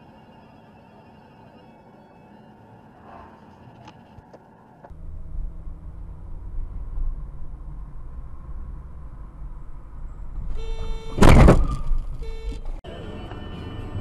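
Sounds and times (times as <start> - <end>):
vehicle road noise: 0.0 - 14.0
loud vehicle collision crash: 11.2 - 12.0.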